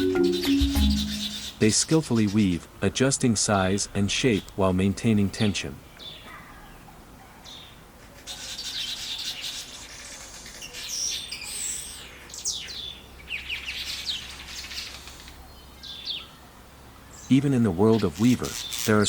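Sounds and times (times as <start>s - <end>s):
weaver birds chattering: 0.0s - 2.6s, 5.8s - 16.4s, 17.0s - 19.0s.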